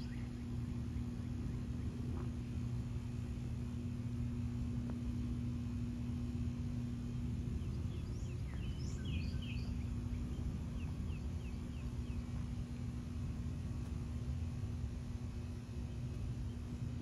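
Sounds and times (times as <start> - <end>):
bird chirping: 0.0 - 1.9, 7.5 - 12.4
vehicle engine running: 0.0 - 17.0.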